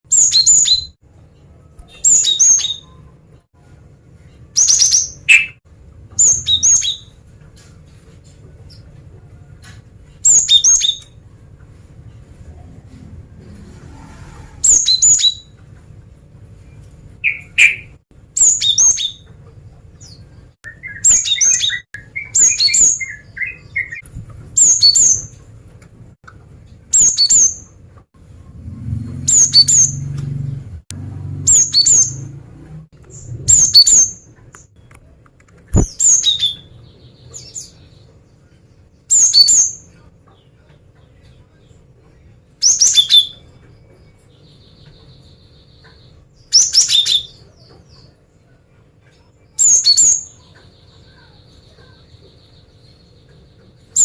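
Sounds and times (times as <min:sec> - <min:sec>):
bird calling with high chirps: 0:00.1 - 0:01.0, 0:01.8 - 0:03.1, 0:04.5 - 0:05.6, 0:06.2 - 0:07.2, 0:10.2 - 0:11.2, 0:17.2 - 0:19.4, 0:20.0 - 0:24.0, 0:24.6 - 0:25.4, 0:26.9 - 0:27.8, 0:29.2 - 0:30.2, 0:31.5 - 0:32.4, 0:33.1 - 0:34.8, 0:39.1 - 0:39.9, 0:49.6 - 0:54.0.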